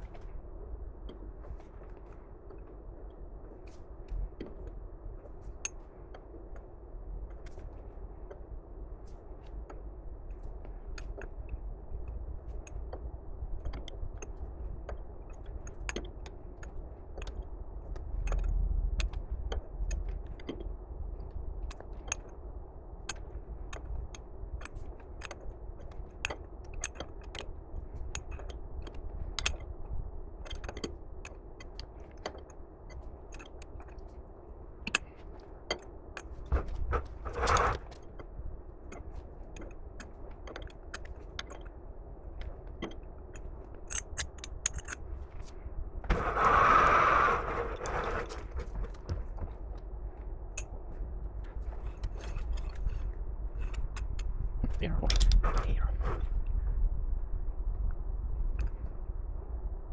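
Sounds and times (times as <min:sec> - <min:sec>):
low steady hum: 0:00.0 - 0:59.9
tools clicking and knocking: 0:42.4 - 0:45.5.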